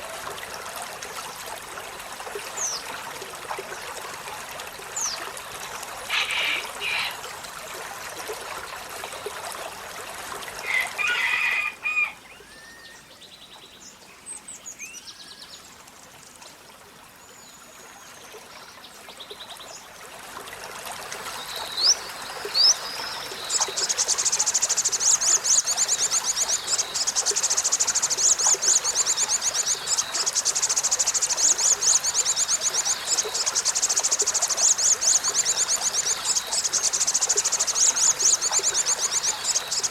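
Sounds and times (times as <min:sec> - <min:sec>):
trickling water: 0:00.0 - 0:39.9
bird calls and chirps: 0:21.4 - 0:39.9.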